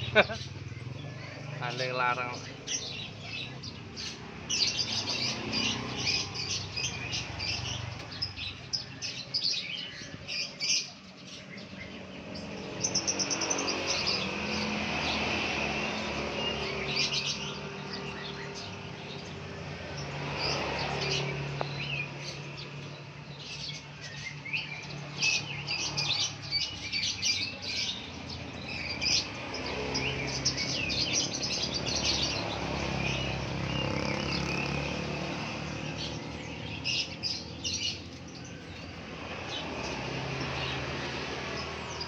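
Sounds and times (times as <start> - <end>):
parrots chirping: 23.7 - 42.0.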